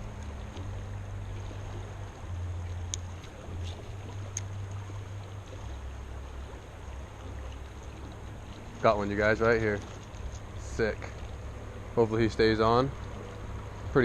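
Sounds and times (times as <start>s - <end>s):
river water rushing: 0.0s - 14.0s
faint ticks: 2.6s - 5.8s.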